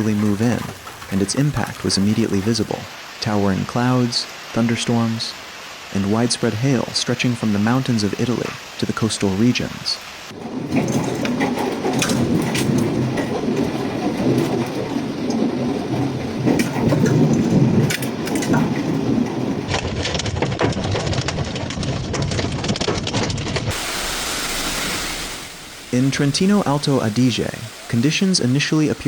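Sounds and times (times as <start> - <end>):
hail clattering on hard surfaces: 0.0 - 2.8, 10.3 - 24.4
heavy rain: 0.0 - 29.0
thunder rumbling: 10.3 - 29.0.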